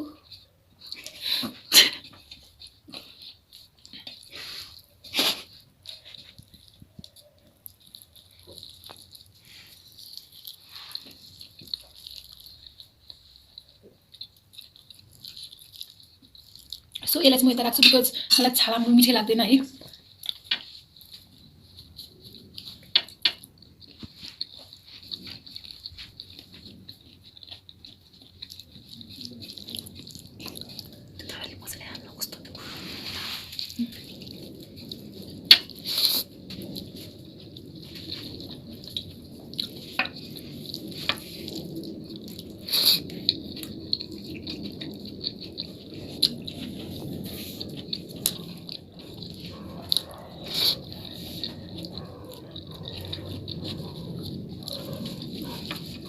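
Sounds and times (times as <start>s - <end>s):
mouth clicks and smacks: 0.0s - 18.7s
chewing and mouth sounds: 0.0s - 56.0s.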